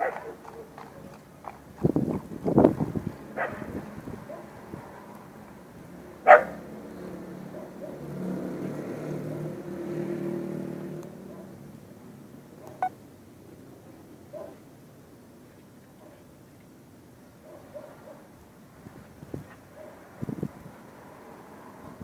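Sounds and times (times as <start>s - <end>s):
dog barking: 0.0s - 1.1s, 3.4s - 4.6s, 6.2s - 6.7s, 7.5s - 8.1s, 11.2s - 11.6s, 12.6s - 12.9s, 14.3s - 14.6s, 17.4s - 18.3s, 19.7s - 20.0s.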